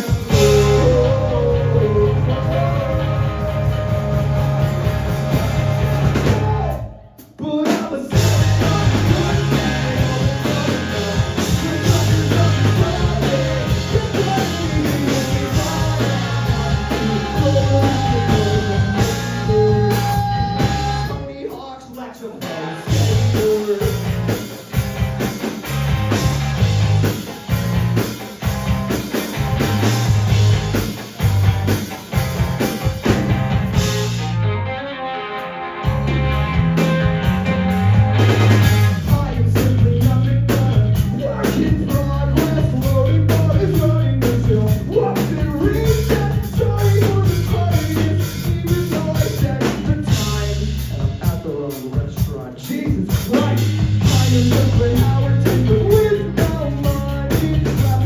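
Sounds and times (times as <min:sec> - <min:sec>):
bass guitar: 0:00.0 - 0:07.2, 0:08.1 - 0:21.4, 0:22.4 - 0:58.0
person singing: 0:00.0 - 0:24.2, 0:38.8 - 0:58.0
drum kit: 0:00.0 - 0:34.5, 0:35.8 - 0:58.0
guitars: 0:00.0 - 0:58.0.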